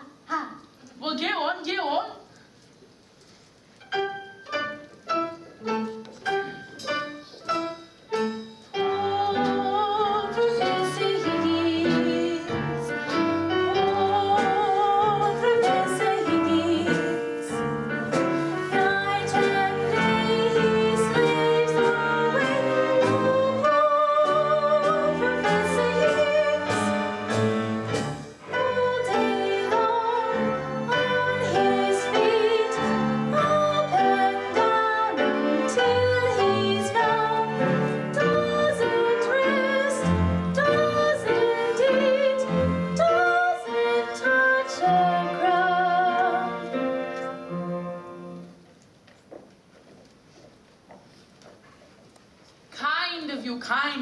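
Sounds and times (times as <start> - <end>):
orchestral accompaniment: 3.8 - 48.6
people singing with vibrato: 8.8 - 47.6.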